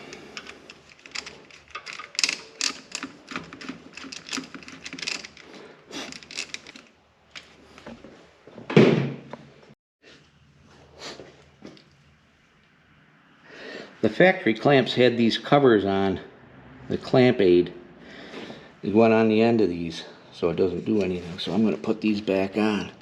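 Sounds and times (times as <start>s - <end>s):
small metallic clicks and rattles: 0.0s - 7.6s.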